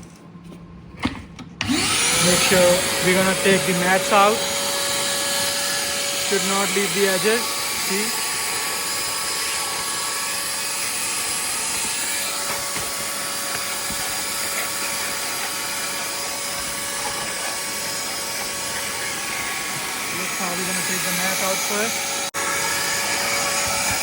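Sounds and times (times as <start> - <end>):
vacuum cleaner running: 1.0 - 24.0.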